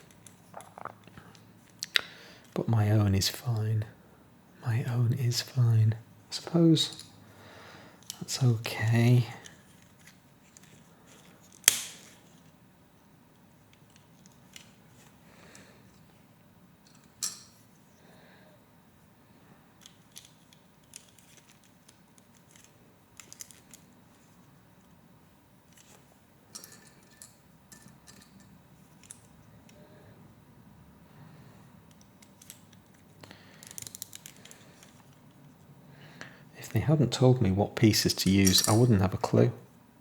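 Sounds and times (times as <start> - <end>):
plastic pieces clicking: 19.8 - 23.9, 31.9 - 35.2.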